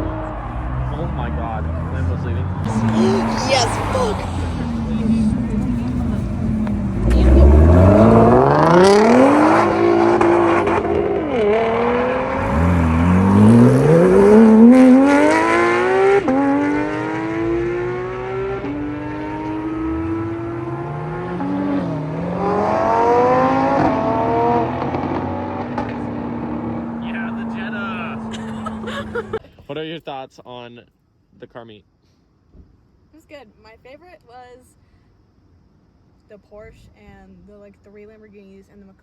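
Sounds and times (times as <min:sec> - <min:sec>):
car engine accelerating hard: 0:00.0 - 0:29.4.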